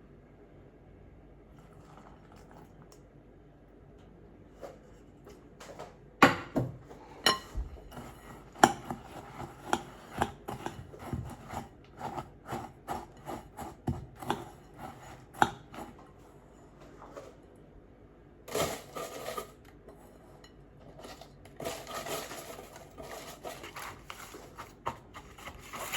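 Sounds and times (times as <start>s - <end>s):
knife chopping on cutting board: 8.6s - 16.0s.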